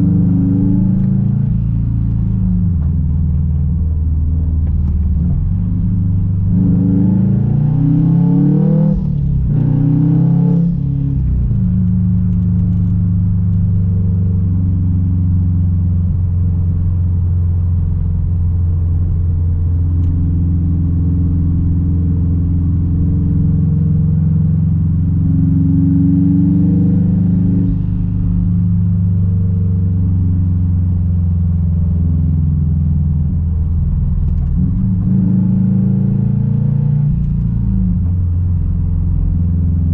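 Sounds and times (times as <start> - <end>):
car exhaust accelerating and shifting: 0.0 - 39.9.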